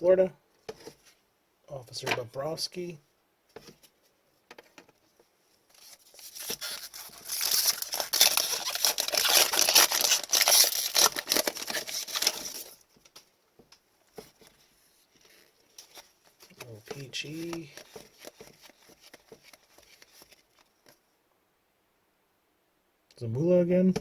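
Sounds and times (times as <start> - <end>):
card pack wrapper tearing and crinkling: 5.8 - 12.8, 15.2 - 20.9.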